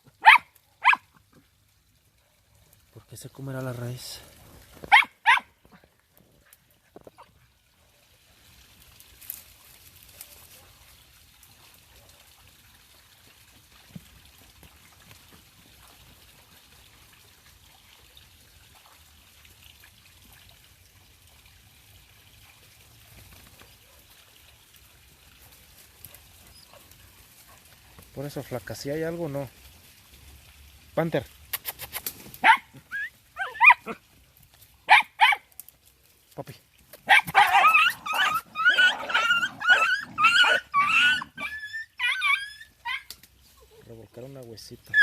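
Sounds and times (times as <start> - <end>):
dogs digging in soil: 37.0 - 41.4.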